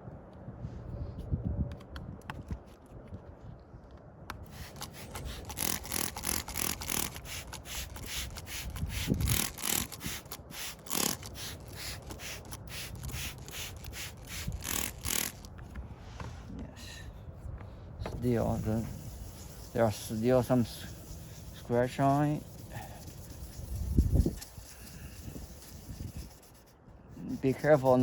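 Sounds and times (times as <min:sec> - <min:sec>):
hand sanding rubbing strokes: 0:04.5 - 0:15.5, 0:18.1 - 0:28.0.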